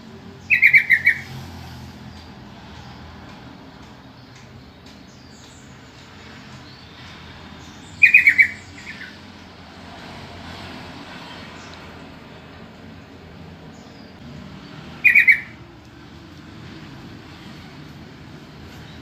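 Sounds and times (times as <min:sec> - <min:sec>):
bird calling loud notes: 0:00.4 - 0:01.4, 0:07.9 - 0:09.2, 0:14.9 - 0:15.7
faint bird chirps: 0:15.0 - 0:15.6.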